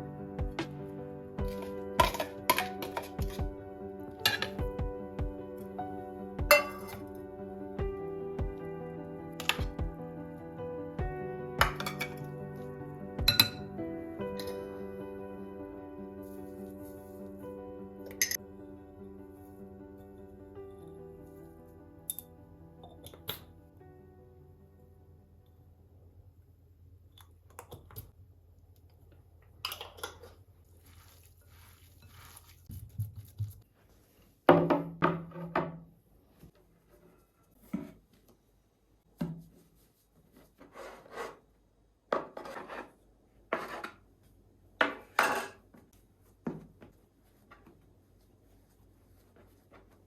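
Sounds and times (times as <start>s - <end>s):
dishes and utensils clattering: 1.5s - 3.4s, 4.2s - 4.6s, 6.5s - 7.0s, 11.6s - 12.2s.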